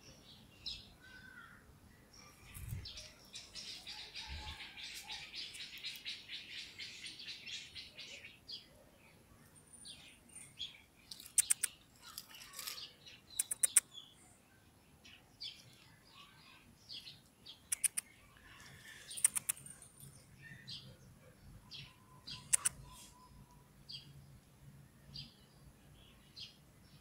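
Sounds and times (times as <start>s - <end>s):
small birds chirping: 0.0s - 27.0s
sharp clicks: 11.1s - 11.8s, 12.6s - 13.9s, 17.7s - 18.1s, 19.1s - 19.8s, 22.4s - 22.8s.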